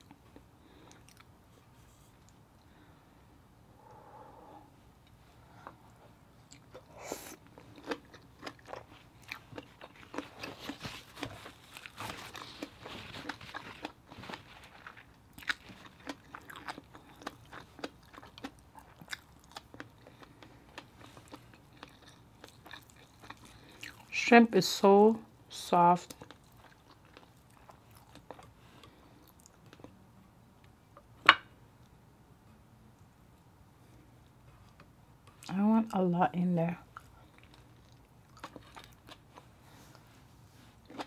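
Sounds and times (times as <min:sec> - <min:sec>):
wet chewing mouth sounds: 0:05.6 - 0:24.1
small crunches while chewing: 0:06.4 - 0:24.2, 0:26.0 - 0:30.0, 0:36.9 - 0:41.0.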